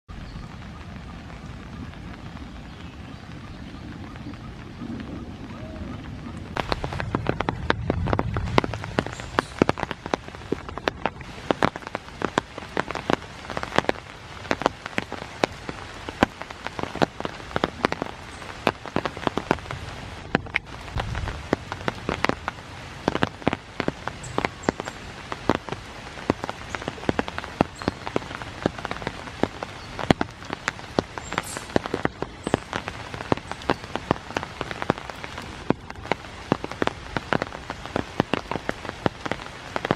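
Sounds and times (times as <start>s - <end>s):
rain drops striking: 0.0s - 39.9s
low rumble: 0.1s - 11.3s.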